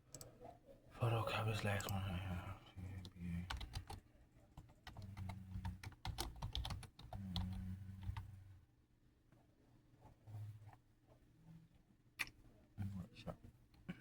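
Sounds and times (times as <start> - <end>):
rapid irregular clicking: 3.0 - 4.0, 4.8 - 8.3.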